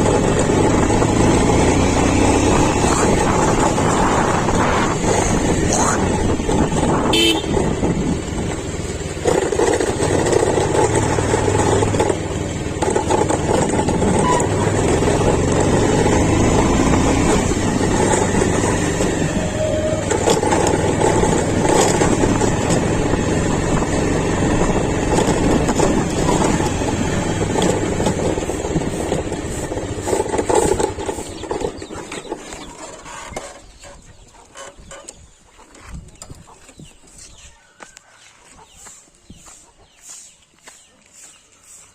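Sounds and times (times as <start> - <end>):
diesel engine running under load: 0.0 - 33.3.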